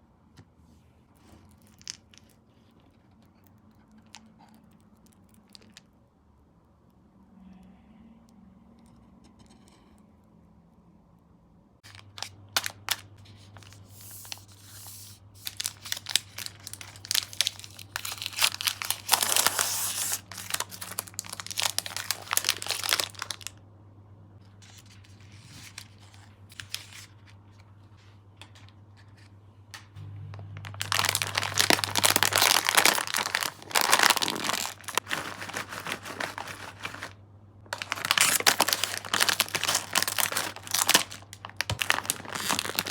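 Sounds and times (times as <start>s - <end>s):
low steady hum: 0.0s - 42.9s
plastic packaging crinkling: 1.3s - 5.9s, 11.8s - 23.6s, 24.6s - 27.6s, 30.5s - 42.9s.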